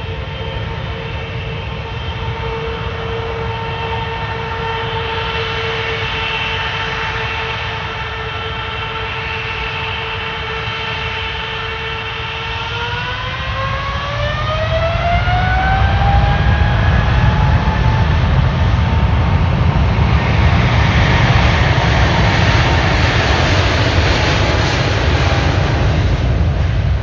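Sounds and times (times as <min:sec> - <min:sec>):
jet engines whining: 0:00.0 - 0:27.0
deep engine rumble: 0:15.2 - 0:27.0.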